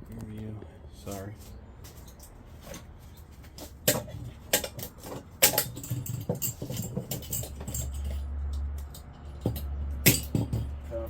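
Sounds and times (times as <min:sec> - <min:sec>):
metal parts clinking: 0:01.9 - 0:11.0.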